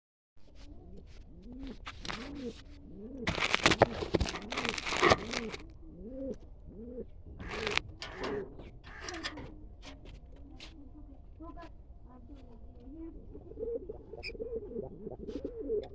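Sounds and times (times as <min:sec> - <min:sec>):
rustling noise: 0:00.4 - 0:05.6, 0:07.4 - 0:07.8
pigeons cooing: 0:00.4 - 0:11.4, 0:12.1 - 0:15.9.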